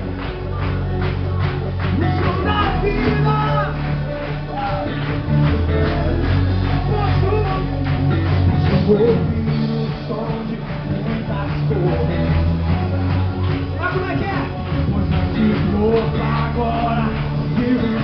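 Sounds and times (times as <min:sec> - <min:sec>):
bass guitar: 0:00.0 - 0:18.0
drums: 0:00.0 - 0:18.0
electric guitars: 0:00.0 - 0:18.0
people singing: 0:08.6 - 0:13.3, 0:14.8 - 0:18.0.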